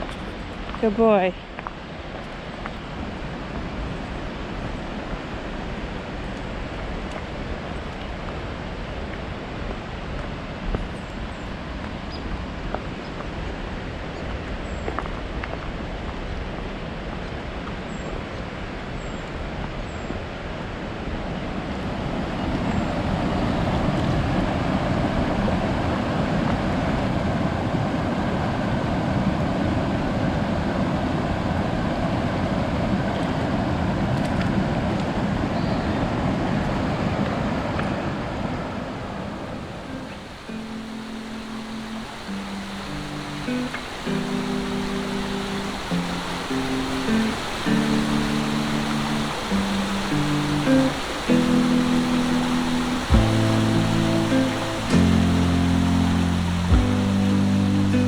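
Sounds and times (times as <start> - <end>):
creek rushing: 38.5 - 58.0
faint high chirps: 39.7 - 58.0.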